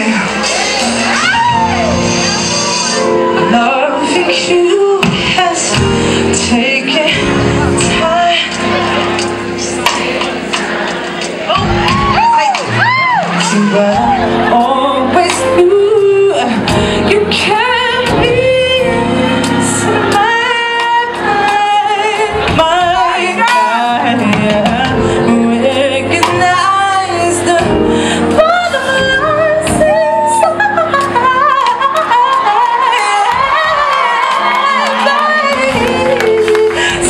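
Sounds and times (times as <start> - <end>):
band playing sustained chords: 0.0 - 32.1.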